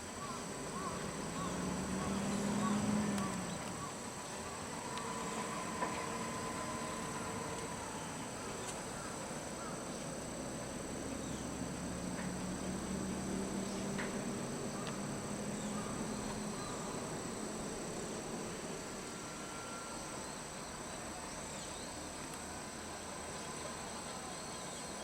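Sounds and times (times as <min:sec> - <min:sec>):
insects singing: 0:00.0 - 0:25.0
low engine hum: 0:00.0 - 0:25.0.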